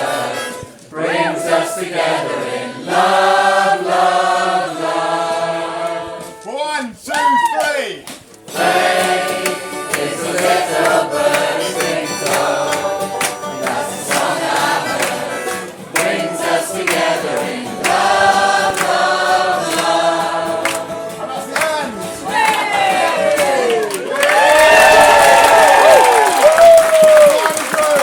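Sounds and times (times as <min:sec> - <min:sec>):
group of voices singing: 0:00.0 - 0:06.5, 0:08.4 - 0:23.8
rhythmic accompaniment: 0:08.0 - 0:23.7.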